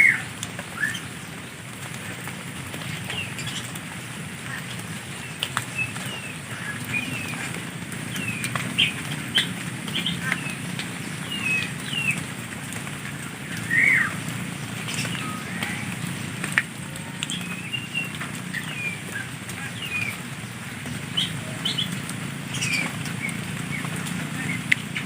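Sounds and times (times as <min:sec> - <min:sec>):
birds chirping and whistling: 0:00.0 - 0:01.1, 0:05.2 - 0:12.3, 0:13.5 - 0:16.3, 0:17.0 - 0:20.2, 0:21.1 - 0:25.0.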